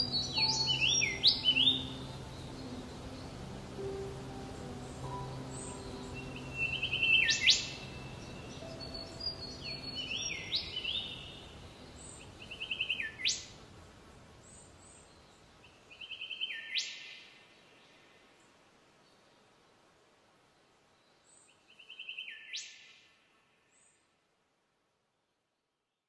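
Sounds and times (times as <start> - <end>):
soft music: 0.0 - 14.3
forest birds calling: 0.0 - 19.5, 20.9 - 24.0.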